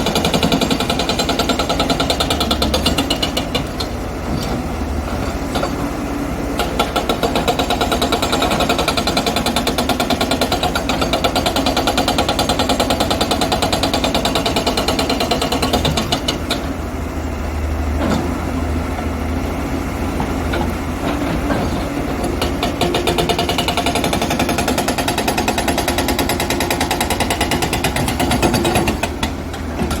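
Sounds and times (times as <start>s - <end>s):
hydraulic breaker hammering rock: 0.0s - 4.0s, 6.5s - 16.7s, 21.2s - 30.0s.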